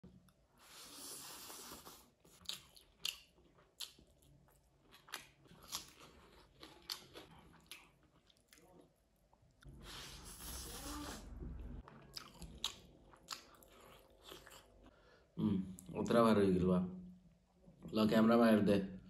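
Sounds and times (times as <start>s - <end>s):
chewing with wet smacks: 2.3s - 9.6s, 11.8s - 14.9s.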